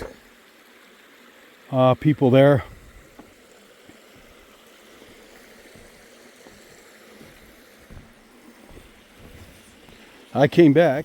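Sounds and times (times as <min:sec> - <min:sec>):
creek water running faintly: 0:00.0 - 0:11.0
soft knocks: 0:05.7 - 0:09.6.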